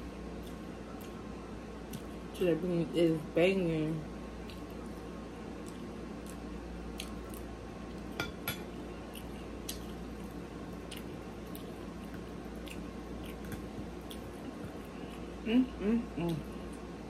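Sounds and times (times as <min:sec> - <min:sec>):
close chewing with wet mouth clicks: 0:05.6 - 0:08.0, 0:10.8 - 0:15.3.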